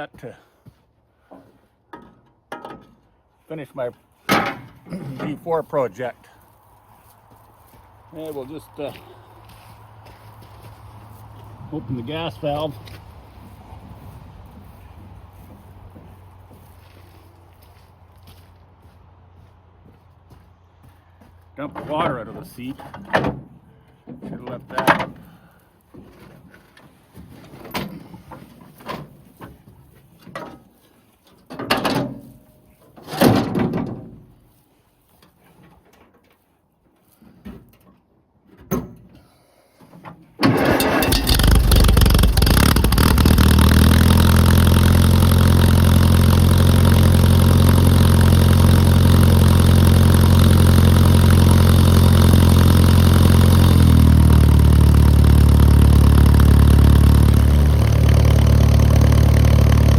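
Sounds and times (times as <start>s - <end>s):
clunks and knocks: 1.3s - 3.1s, 4.3s - 5.4s, 21.7s - 25.3s, 31.4s - 32.4s, 33.0s - 34.3s, 37.4s - 39.2s
tractor engine running: 4.3s - 20.0s, 40.4s - 59.9s.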